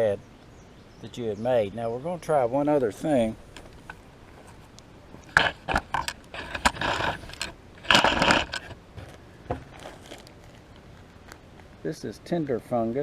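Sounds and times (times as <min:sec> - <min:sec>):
scraping and rustling: 0:03.1 - 0:11.8
sharp clicks and knocks: 0:05.2 - 0:10.3.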